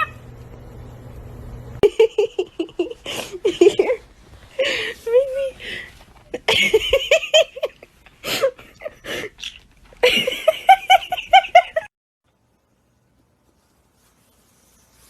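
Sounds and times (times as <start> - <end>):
laughter in ha-ha bursts: 1.8 - 4.0, 6.4 - 9.0, 10.0 - 11.9.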